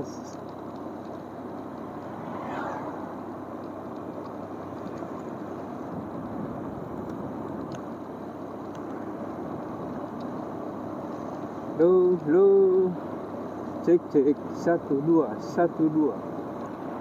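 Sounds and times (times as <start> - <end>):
motorcycle wind and road rush: 0.5 - 13.8
falling whoosh: 2.2 - 3.3.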